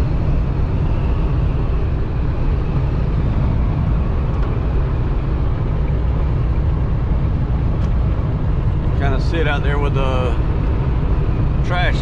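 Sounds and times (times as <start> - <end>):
strong crosswind: 0.0 - 12.0
truck cab road rumble: 0.0 - 12.0.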